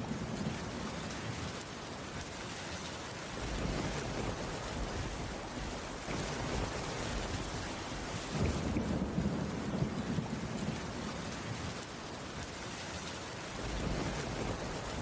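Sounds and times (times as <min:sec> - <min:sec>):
low rumble of thunder: 0:00.0 - 0:01.6, 0:03.3 - 0:11.8, 0:13.5 - 0:15.0
rainfall hiss: 0:00.0 - 0:15.0.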